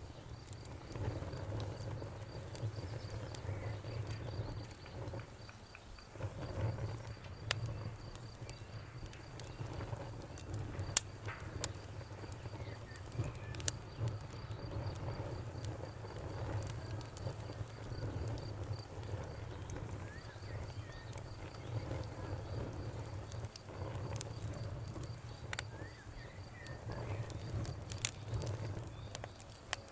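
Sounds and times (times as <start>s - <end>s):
cricket chirping: 0.0s - 29.7s
campfire crackling and popping: 0.0s - 29.9s.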